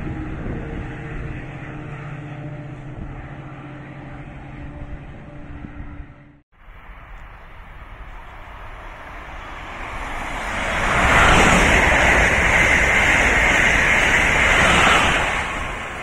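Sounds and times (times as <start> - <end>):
high-speed train passing: 0.0 - 16.0.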